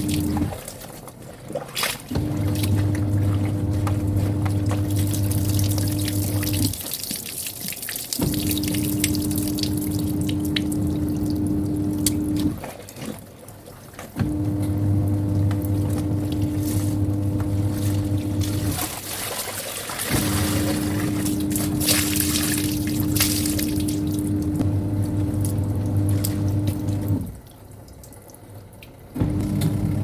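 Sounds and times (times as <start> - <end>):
washing machine motor humming: 0.0 - 0.6, 2.1 - 6.9, 8.2 - 12.7, 14.2 - 27.4, 29.2 - 30.0
water sloshing and dripping: 0.0 - 30.0.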